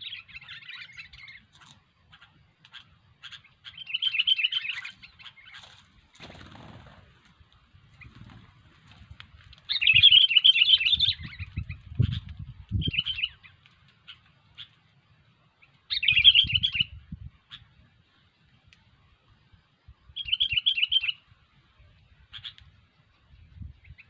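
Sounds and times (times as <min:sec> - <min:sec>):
bird chattering calls: 0:00.0 - 0:05.8, 0:22.3 - 0:22.6.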